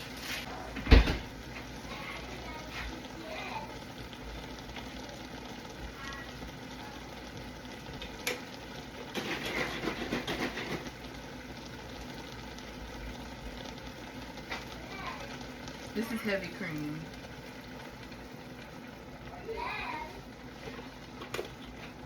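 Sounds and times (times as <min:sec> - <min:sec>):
food sizzling in a pan: 0:00.0 - 0:22.0
spoon scraping a pan: 0:09.1 - 0:11.0.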